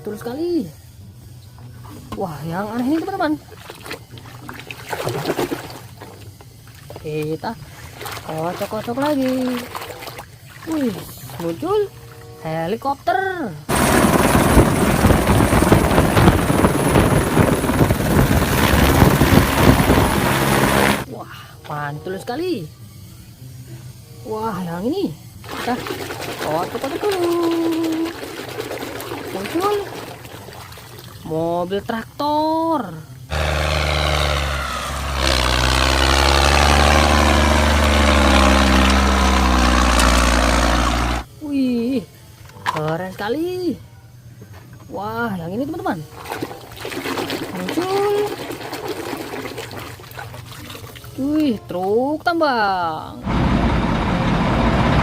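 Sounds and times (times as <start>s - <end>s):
helicopter engine drone: 13.7s - 21.1s, 33.3s - 41.3s, 53.2s - 55.0s
helicopter rotor blades chopping: 13.7s - 21.1s, 33.3s - 41.3s, 53.2s - 55.0s.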